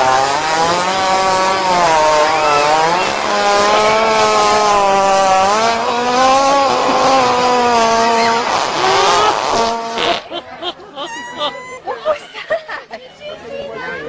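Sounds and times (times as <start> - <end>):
hippopotamus farting: 0.0 - 10.3.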